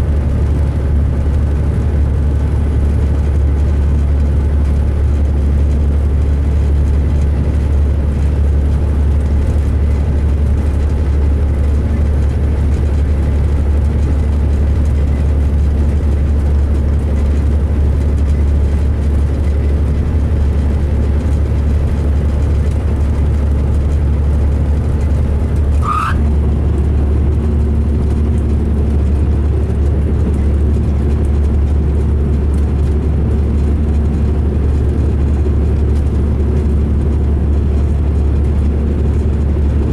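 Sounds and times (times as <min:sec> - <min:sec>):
diesel engine droning: 0:00.0 - 0:39.9
short rising squeak: 0:25.7 - 0:26.3.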